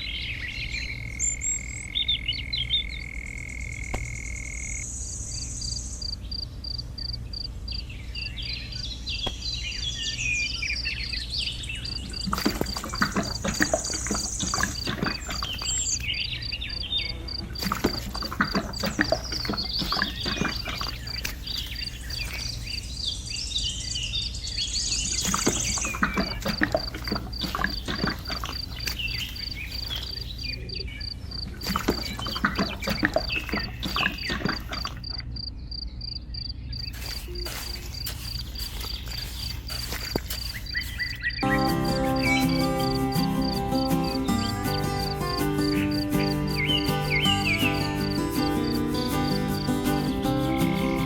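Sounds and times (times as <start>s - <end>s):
insect chirping: 0.7s - 7.8s, 11.8s - 51.0s
short bird-like chirps: 36.3s - 51.0s
music: 41.4s - 51.0s.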